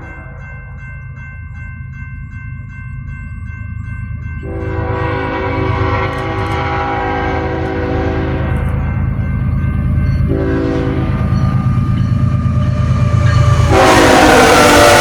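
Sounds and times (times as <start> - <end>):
locomotive engine rumbling: 0.0 - 15.0
train bell ringing: 0.0 - 15.0
train air horn chord: 4.4 - 8.8, 10.3 - 11.3, 13.4 - 15.0.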